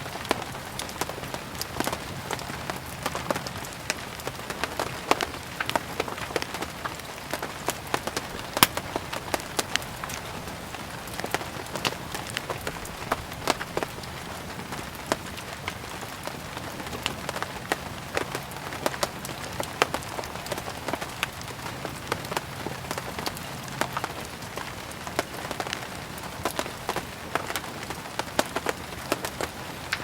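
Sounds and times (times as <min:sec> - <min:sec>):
steady rain hiss: 0:00.0 - 0:30.0
sharp pops and crackles: 0:05.6 - 0:10.3.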